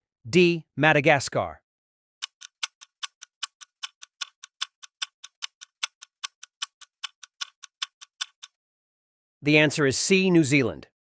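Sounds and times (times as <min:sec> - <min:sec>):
clock ticking: 0:02.2 - 0:08.6.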